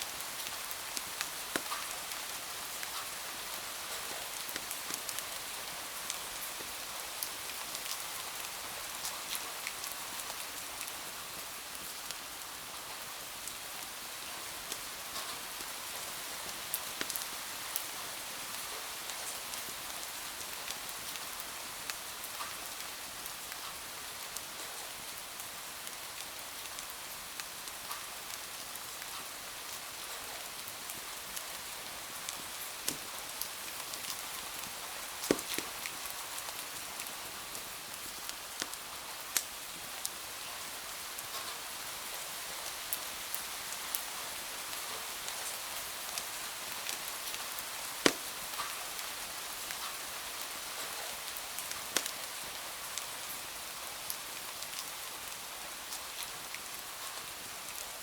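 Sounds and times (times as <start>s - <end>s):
rain on a window: 0.0s - 58.0s
wood fire crackling and popping: 1.0s - 1.9s, 4.0s - 5.2s, 16.7s - 17.3s, 32.3s - 38.8s, 46.8s - 48.8s, 51.6s - 52.2s.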